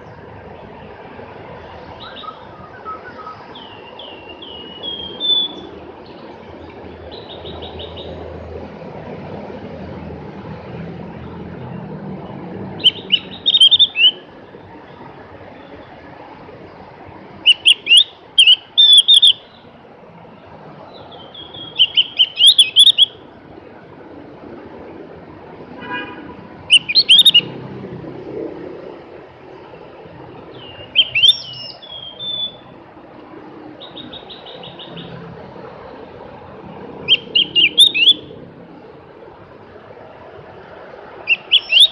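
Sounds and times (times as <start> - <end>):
bird chattering song: 2.0 - 6.3, 12.8 - 14.2, 17.4 - 19.7, 20.9 - 23.2, 26.7 - 27.5, 30.5 - 32.6, 33.8 - 35.2, 37.0 - 38.3, 41.3 - 41.9.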